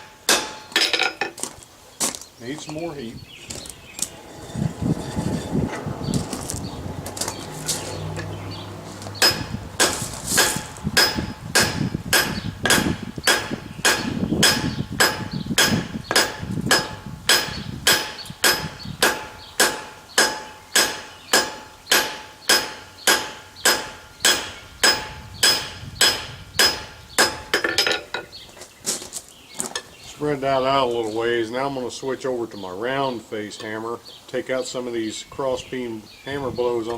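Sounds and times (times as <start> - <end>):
hammer ringing on hot steel: 0.3 - 1.0, 9.2 - 27.6
low rumbling: 3.0 - 19.6.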